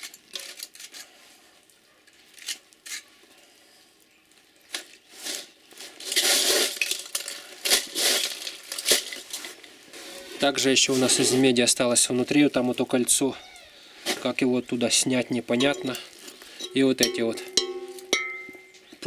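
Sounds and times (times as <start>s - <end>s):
wire and metal rustling and clattering: 0.0s - 13.3s, 14.0s - 19.0s
wire clinking: 15.2s - 19.0s.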